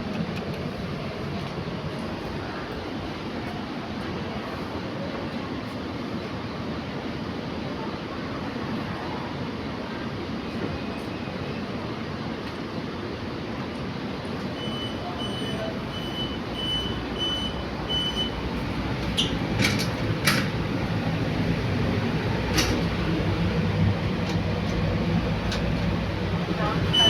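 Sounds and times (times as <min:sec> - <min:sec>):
lift machinery rumbling: 0:14.2 - 0:27.0
short high beeps: 0:14.6 - 0:18.4.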